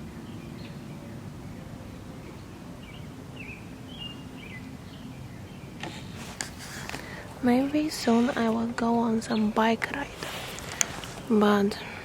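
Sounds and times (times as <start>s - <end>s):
low background rumble: 0.0s - 12.0s
small birds chirping: 0.0s - 12.0s.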